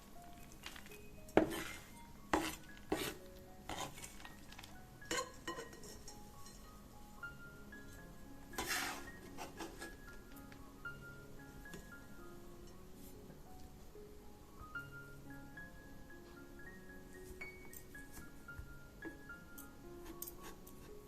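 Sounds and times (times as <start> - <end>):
soft background music: 0.0 - 21.0
utensils clinking against a bowl: 0.4 - 6.8, 19.1 - 20.8.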